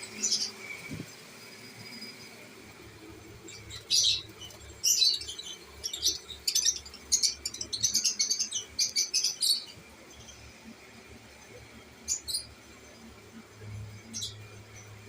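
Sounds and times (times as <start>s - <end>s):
lovebird chirping: 3.4s - 10.4s.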